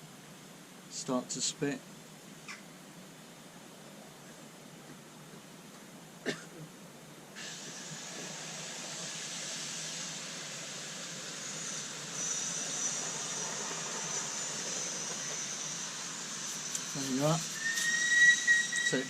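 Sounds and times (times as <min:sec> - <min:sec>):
gas hissing: 0:07.4 - 0:19.0
thin high whistle: 0:07.4 - 0:19.0.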